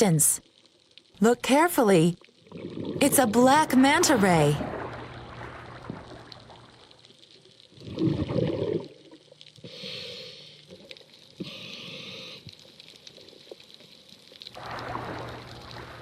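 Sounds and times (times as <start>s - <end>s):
exhaled bubbles rushing underwater: 2.4s - 7.1s, 7.7s - 9.2s, 14.5s - 16.0s.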